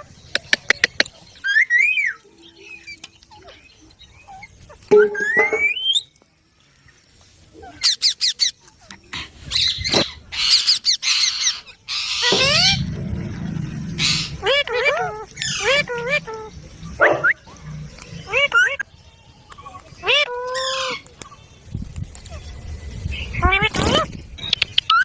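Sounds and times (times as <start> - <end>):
parakeets calling: 7.8 - 21.1
sharp chirps and harsh screeches: 9.4 - 18.8
parakeet squawk: 9.5 - 12.8, 14.0 - 17.4.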